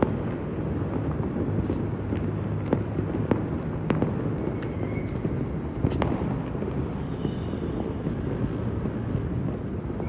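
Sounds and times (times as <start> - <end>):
steady low rumble: 0.0 - 7.0
distant fireworks bangs: 0.0 - 10.0.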